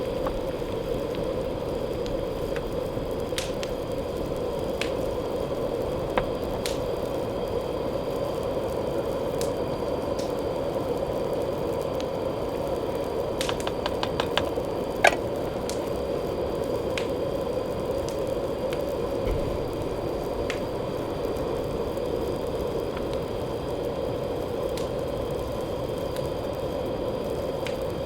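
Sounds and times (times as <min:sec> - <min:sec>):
heavy rain: 0:00.0 - 0:28.0
drips and clicks: 0:13.4 - 0:15.8.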